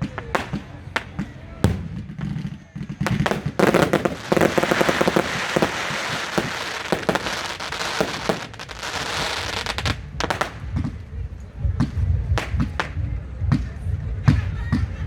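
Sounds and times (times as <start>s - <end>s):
fireworks crackling: 0.0s - 14.9s
firework bangs: 0.0s - 15.0s.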